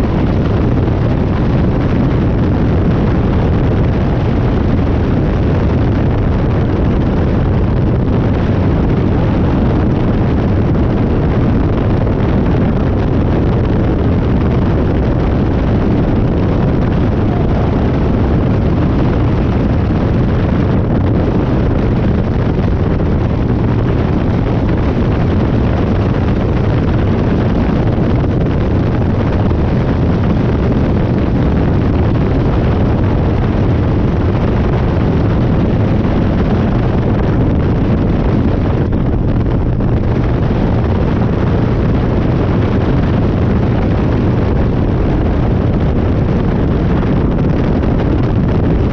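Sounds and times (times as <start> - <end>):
wind noise on microphone: 0.0 - 48.9
motorcycle engine running: 13.7 - 30.8.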